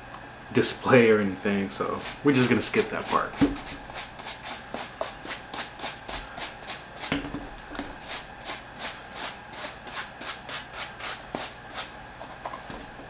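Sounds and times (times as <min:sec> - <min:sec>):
brush strokes on a sneaker: 0:02.0 - 0:07.1, 0:08.0 - 0:11.9.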